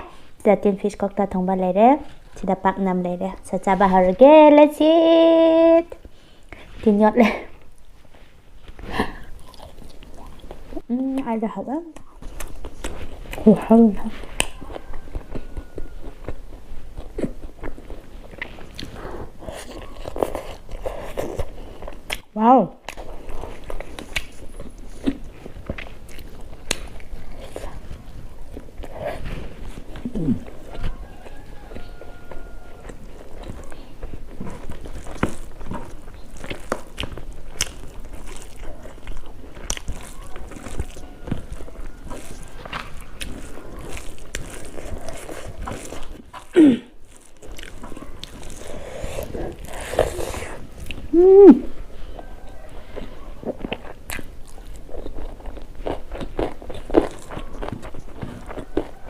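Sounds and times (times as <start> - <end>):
person chewing food: 7.6 - 11.3, 11.9 - 59.0
pitched throat sounds: 30.0 - 30.6, 46.4 - 47.0.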